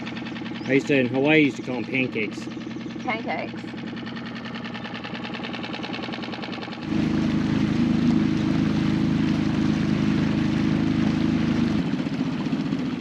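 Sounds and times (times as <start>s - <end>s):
outboard motor running: 0.0s - 13.0s
water rushing: 5.1s - 13.0s.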